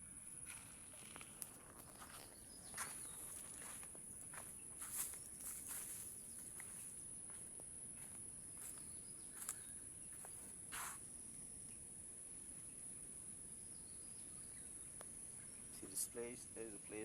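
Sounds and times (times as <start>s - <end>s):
insects trilling: 0.0s - 17.0s
soft crackles and knocks: 0.5s - 6.9s.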